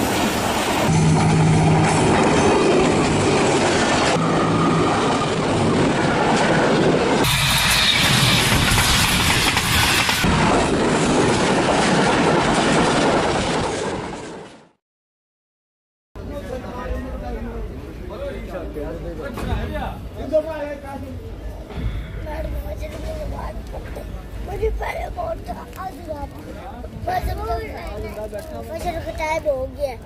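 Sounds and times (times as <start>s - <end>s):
passenger train passing: 0.0s - 14.2s.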